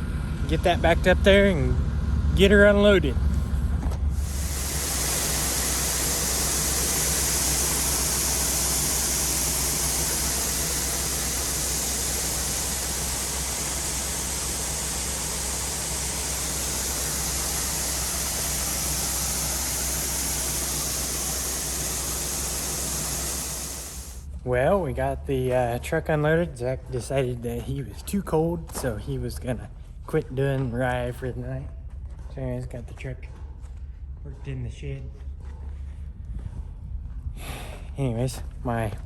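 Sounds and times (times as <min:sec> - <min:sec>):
engine hum: 0:00.0 - 0:24.2
grain pouring: 0:04.2 - 0:24.2.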